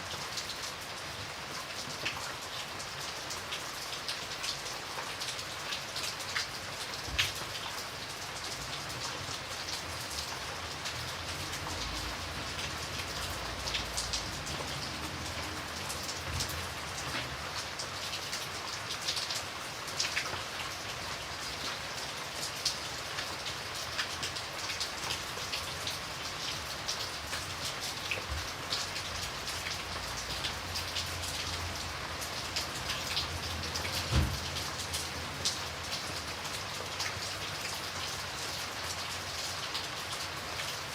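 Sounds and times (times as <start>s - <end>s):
steady rain hiss: 0.0s - 40.9s
raindrops tapping on a surface: 3.0s - 40.8s
low thump: 34.1s - 34.4s.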